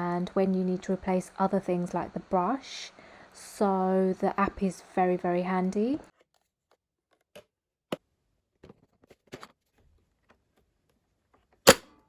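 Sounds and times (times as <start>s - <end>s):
sharp loud click: 11.7s - 11.9s.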